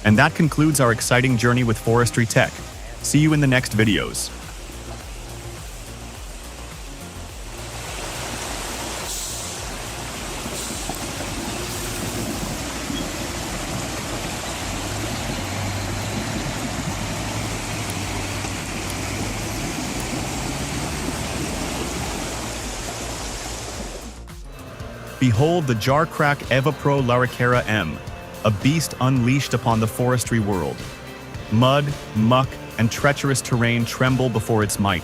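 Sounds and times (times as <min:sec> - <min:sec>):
broad rushing noise: 0:00.0 - 0:26.7
heavy machine engine running: 0:02.0 - 0:25.0.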